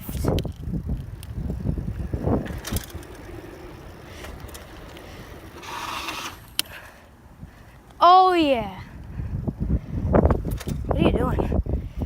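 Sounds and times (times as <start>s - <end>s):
wind rumble on microphone: 0.0s - 6.0s, 8.5s - 12.0s
bicycle tyre skidding on pavement: 0.0s - 7.2s.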